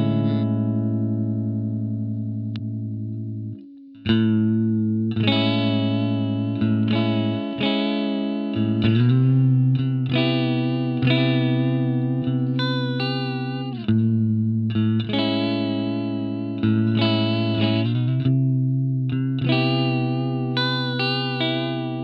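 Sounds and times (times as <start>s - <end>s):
electric guitar chords with chorus: 0.0s - 22.0s.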